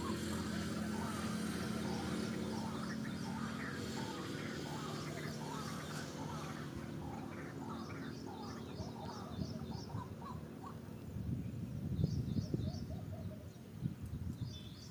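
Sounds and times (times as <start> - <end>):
low rumbling noise: 0.0 - 12.7
birds chirping: 0.0 - 14.9.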